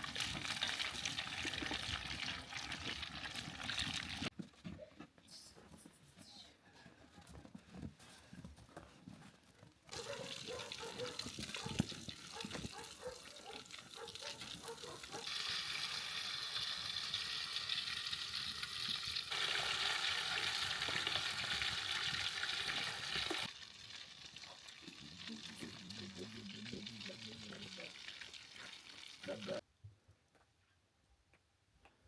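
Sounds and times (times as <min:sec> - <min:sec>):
food sizzling in a hot pan: 0:15.3 - 0:29.6.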